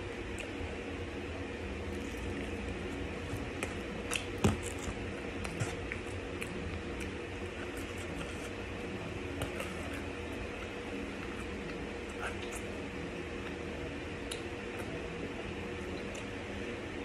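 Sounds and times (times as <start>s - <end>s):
chewing clicks and smacks: 14.2s - 14.9s.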